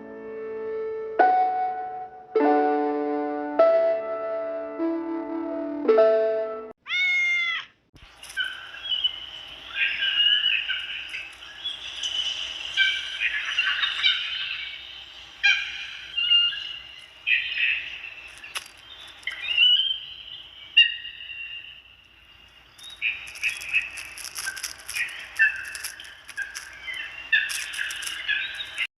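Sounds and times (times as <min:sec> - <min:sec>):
crackling noise: 0:08.0 - 0:20.7, 0:21.7 - 0:28.9
birds chirping: 0:08.0 - 0:28.9.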